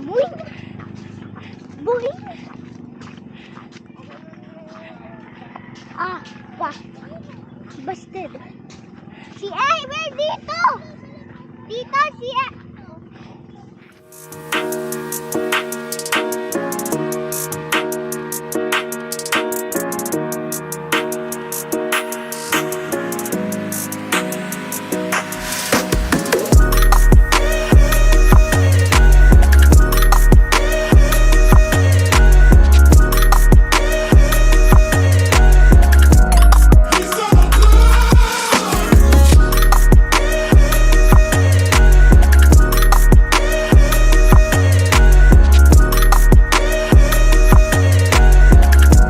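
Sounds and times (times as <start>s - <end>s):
sustained instrumental chords: 14.0s - 49.0s
drum beat with ticking hi-hats: 14.1s - 49.0s.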